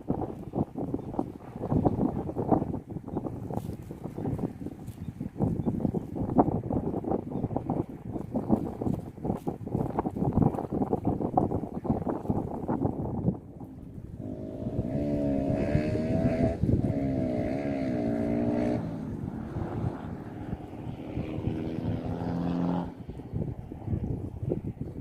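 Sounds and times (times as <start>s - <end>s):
wind buffeting microphone: 0.0s - 25.0s
engine humming: 13.6s - 23.0s.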